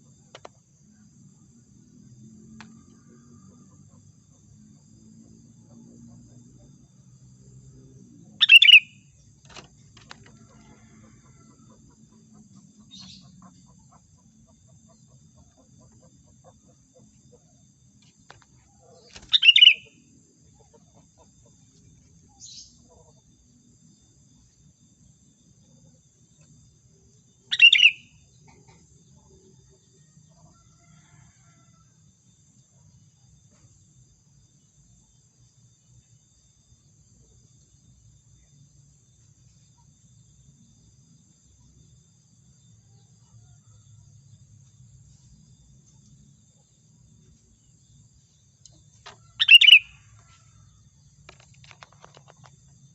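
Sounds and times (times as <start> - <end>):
faint high-pitched insect drone: 0.0 - 52.9
bird chirping calls: 8.4 - 9.0, 18.8 - 20.0, 27.5 - 28.2, 49.1 - 50.1.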